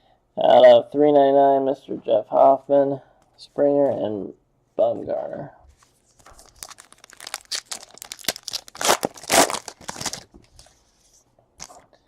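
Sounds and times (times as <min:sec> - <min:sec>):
card pack wrapper ripping and crinkling: 0:06.2 - 0:10.3.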